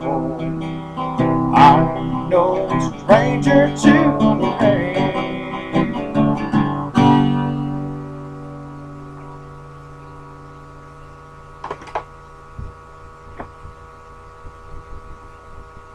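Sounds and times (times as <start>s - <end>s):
acoustic guitar picking and strumming: 0.0s - 11.0s.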